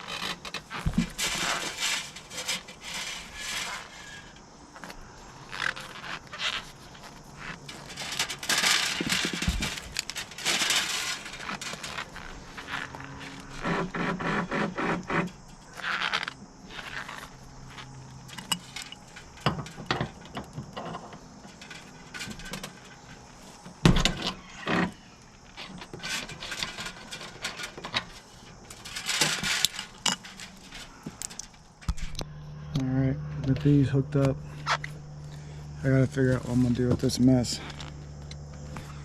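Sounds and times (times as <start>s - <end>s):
metal tools clicking and rattling: 18.3s - 23.2s, 25.7s - 31.7s.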